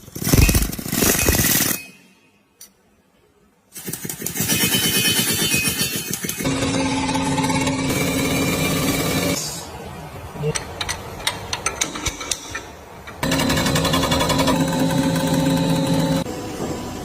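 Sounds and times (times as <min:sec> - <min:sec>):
hand tools clicking and knocking: 0:10.5 - 0:14.7.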